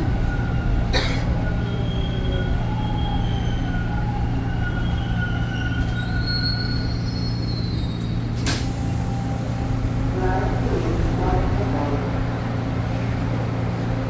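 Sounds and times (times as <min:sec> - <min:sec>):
subway train rumble: 0:00.0 - 0:14.0
high wheel squeal: 0:01.5 - 0:08.3.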